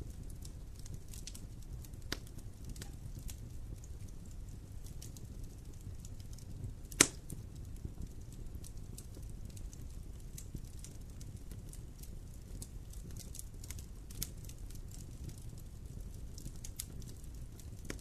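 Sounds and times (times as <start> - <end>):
campfire crackling: 0.0 - 18.0
low rumble of flames: 0.0 - 18.0
sharp loud pop of fire: 7.0 - 7.2.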